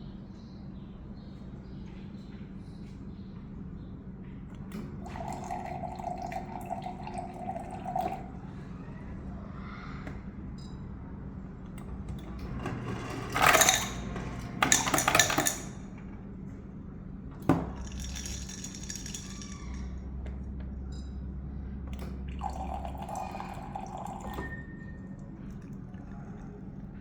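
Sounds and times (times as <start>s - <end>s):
fridge humming: 4.5s - 9.0s, 11.5s - 16.4s, 21.8s - 27.0s
ice cubes clattering into bin: 13.1s - 15.8s, 17.7s - 19.9s.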